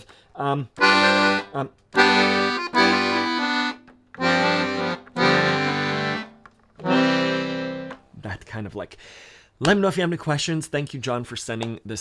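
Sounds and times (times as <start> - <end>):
accordion playing bluesy chords: 0.8 - 8.1.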